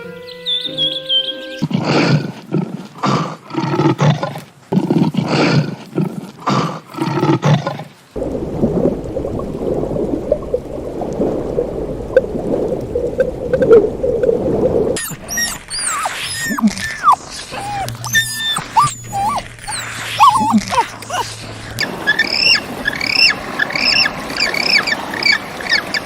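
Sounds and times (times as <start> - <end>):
large animal calling: 15.0 - 26.0.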